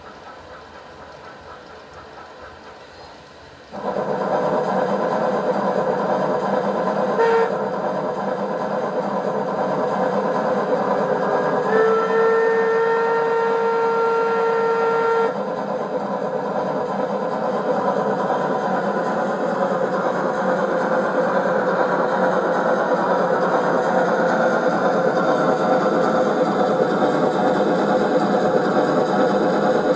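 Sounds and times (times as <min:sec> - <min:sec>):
steam engine running sound: 0:00.0 - 0:29.9
train whistle: 0:07.1 - 0:07.7, 0:11.2 - 0:15.4.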